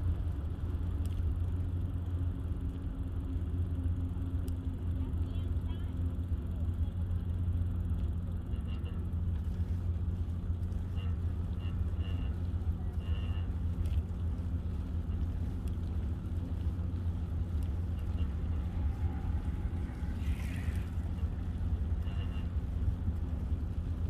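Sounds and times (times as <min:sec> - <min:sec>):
wind rumble on microphone: 0:06.0 - 0:24.0.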